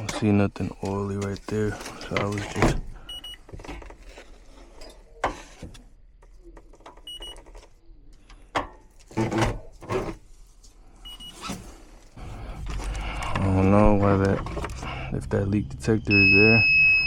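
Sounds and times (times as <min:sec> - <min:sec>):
knocks and handling of tools: 0:00.0 - 0:10.3, 0:12.5 - 0:14.9.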